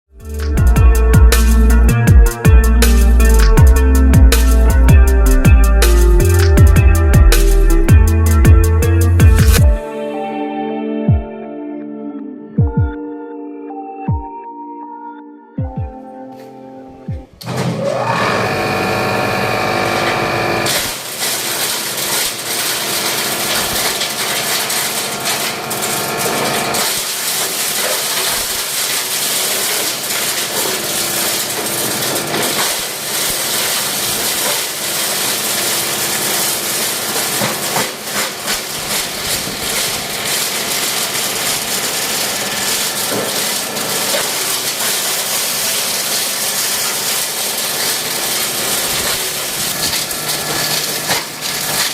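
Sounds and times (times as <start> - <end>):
plastic shredder chopping plastic: 0.4 - 9.7, 17.4 - 51.9.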